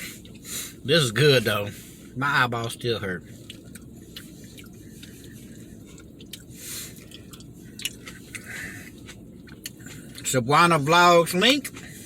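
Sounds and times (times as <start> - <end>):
man chewing food: 0.0 - 0.8, 3.2 - 10.3, 11.6 - 12.0
low background rumble: 0.0 - 12.0.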